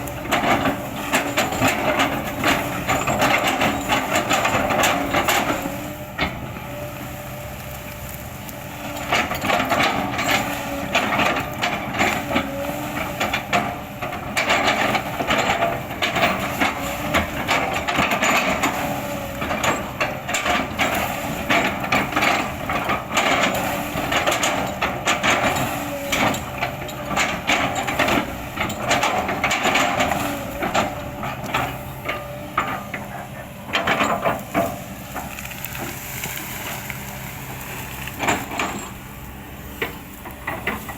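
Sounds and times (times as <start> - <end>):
excavator engine drone: 0.0 - 40.9
wood cracking and crunching: 35.0 - 39.1.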